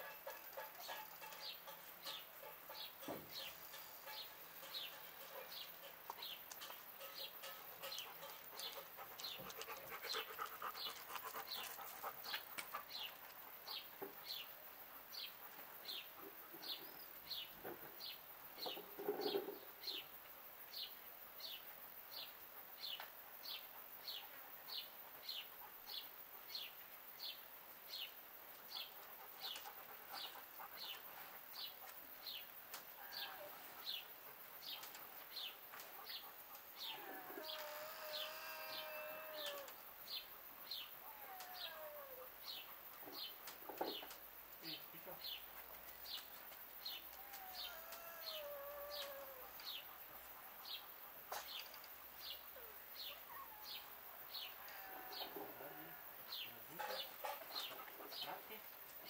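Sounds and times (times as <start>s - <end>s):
low-pitched animal sound: 36.8s - 39.8s, 41.0s - 42.3s, 47.1s - 49.7s.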